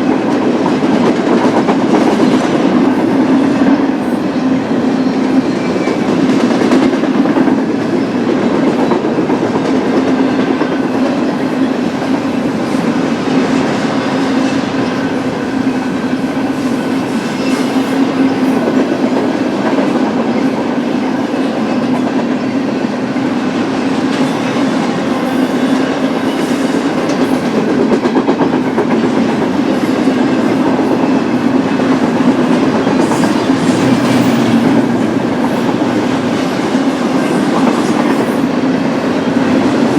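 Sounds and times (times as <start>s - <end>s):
train wheels rolling on rail: 0.0s - 39.9s.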